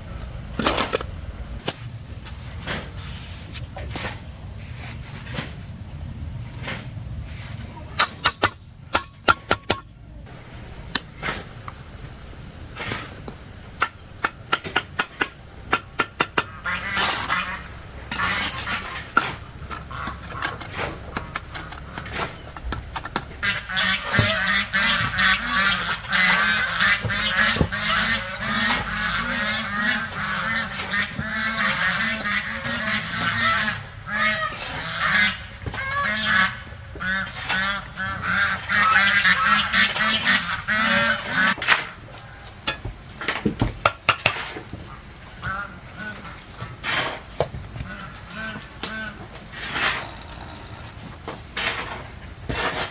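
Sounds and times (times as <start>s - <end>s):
flock of fowl honking: 16.5s - 18.9s, 23.4s - 41.6s.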